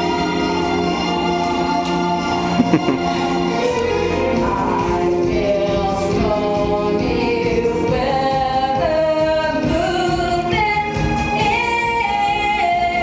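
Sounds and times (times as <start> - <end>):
musical accompaniment: 0.0 - 13.0
women singing a pop song: 3.4 - 13.0.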